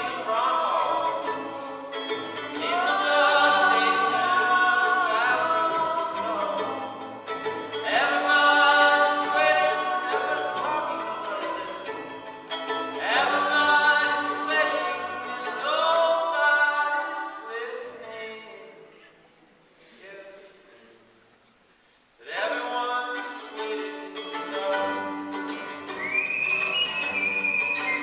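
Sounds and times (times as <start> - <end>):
person singing: 0.0 - 7.2, 7.8 - 12.3, 22.3 - 25.4
bowed strings: 0.0 - 18.0, 22.4 - 28.0.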